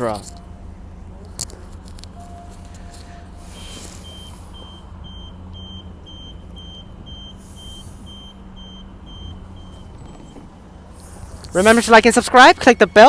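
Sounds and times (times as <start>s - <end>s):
train humming: 0.0s - 13.0s
short electronic warning beeps: 2.2s - 10.6s
brief hisses: 3.1s - 4.5s.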